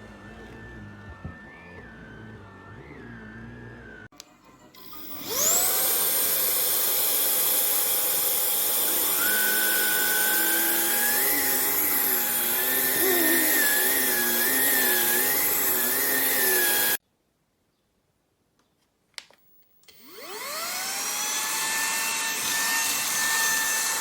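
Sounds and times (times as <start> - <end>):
wavering tone: 0.0 - 4.1
vacuum cleaner motor whine: 0.0 - 4.2, 4.8 - 17.0, 19.9 - 24.0.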